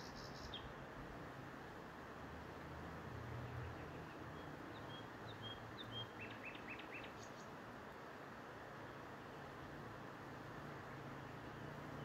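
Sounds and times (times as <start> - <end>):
songbird chirping: 0.0 - 0.8, 3.4 - 7.6
steady background hiss: 0.0 - 12.0.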